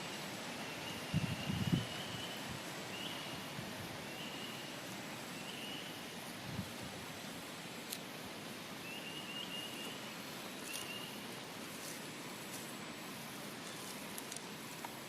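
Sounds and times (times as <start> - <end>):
thin high call: 0.0 - 6.2, 8.8 - 12.8
steady hiss: 0.0 - 15.0.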